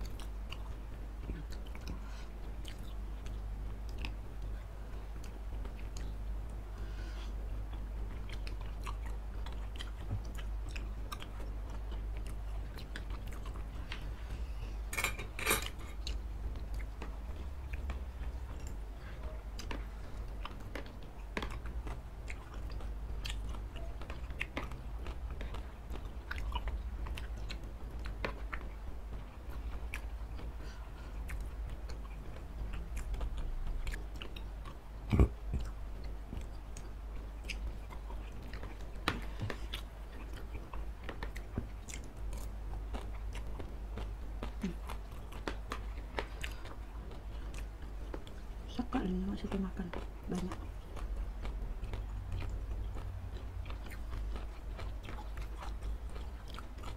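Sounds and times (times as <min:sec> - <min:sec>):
wet chewing and lip smacks: 0:16.0 - 0:48.6, 0:49.5 - 0:56.9.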